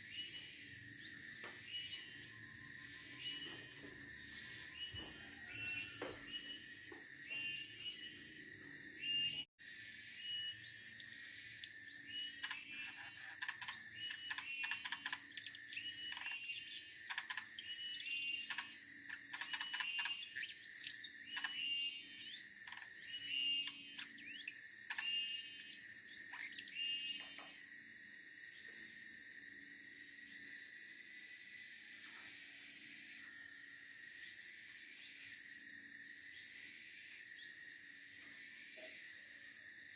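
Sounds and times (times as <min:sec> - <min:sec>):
bird singing chirping phrases: 0:00.0 - 0:06.7, 0:07.3 - 0:27.6.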